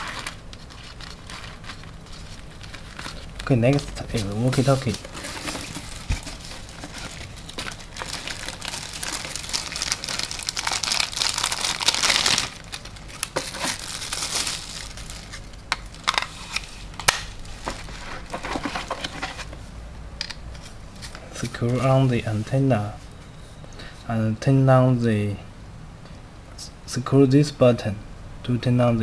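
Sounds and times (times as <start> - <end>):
plastic packaging crinkling: 0.0 - 19.3.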